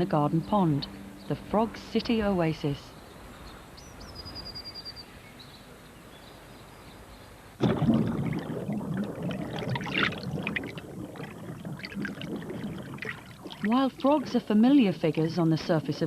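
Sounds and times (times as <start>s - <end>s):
water splashing in a pond: 7.6s - 14.6s.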